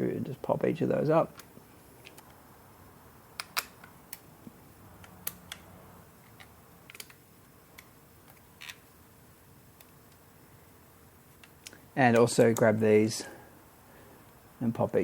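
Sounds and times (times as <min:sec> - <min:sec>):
plastic tabs clicking and snapping: 0:03.4 - 0:04.2, 0:06.3 - 0:08.8.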